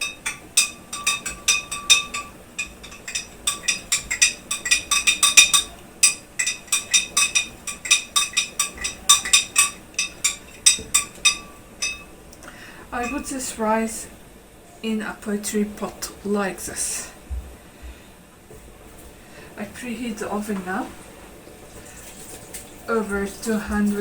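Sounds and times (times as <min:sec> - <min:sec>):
spoon clinking against bowl: 0:00.0 - 0:12.2.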